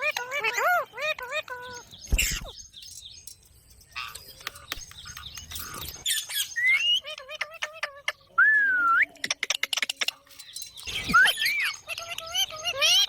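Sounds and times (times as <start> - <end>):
parrot chattering clicks and chirps: 3.3 - 8.2, 9.0 - 13.0.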